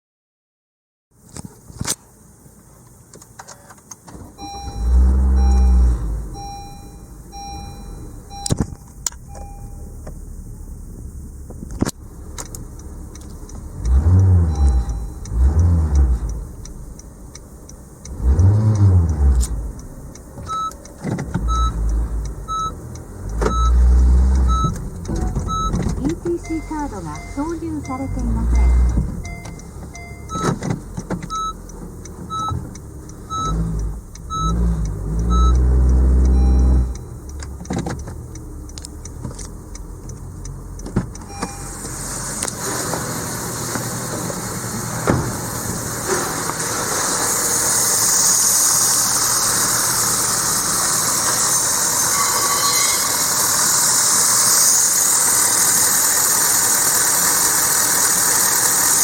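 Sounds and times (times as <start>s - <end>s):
car engine starting and idling: 3.0s - 59.0s
warning chime beeps: 4.4s - 10.0s, 14.2s - 16.4s, 21.4s - 22.8s, 23.5s - 30.5s, 31.3s - 31.7s, 32.3s - 37.3s, 41.2s - 41.8s.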